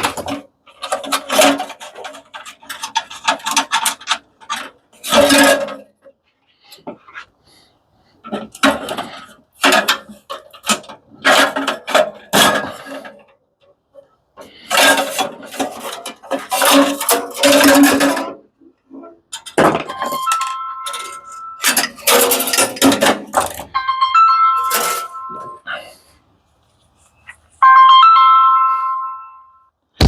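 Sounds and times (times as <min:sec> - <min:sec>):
metal parts clattering: 0:00.0 - 0:06.1, 0:08.2 - 0:13.3, 0:14.4 - 0:23.8, 0:24.6 - 0:25.6
phone ringing: 0:19.9 - 0:21.6, 0:23.7 - 0:25.7, 0:27.6 - 0:29.7.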